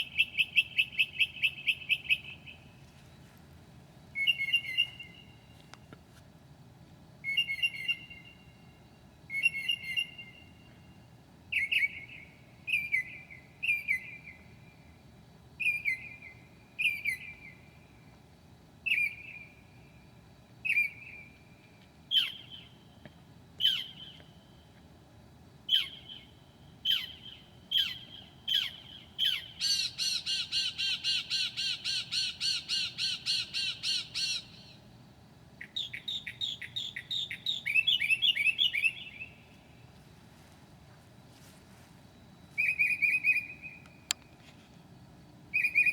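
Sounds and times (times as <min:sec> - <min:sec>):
mockingbird singing: 0:00.0 - 0:02.7, 0:04.2 - 0:05.5, 0:07.2 - 0:08.4, 0:22.1 - 0:22.7, 0:23.6 - 0:24.2, 0:25.7 - 0:34.8, 0:35.6 - 0:39.5, 0:42.6 - 0:44.2, 0:45.5 - 0:45.9.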